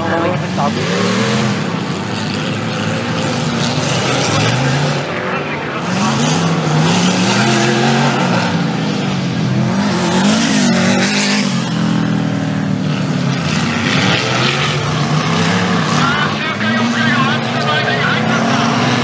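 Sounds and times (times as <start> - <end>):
steady rush of noise: 0.0 - 10.5
off-road vehicle engines revving: 0.0 - 19.0.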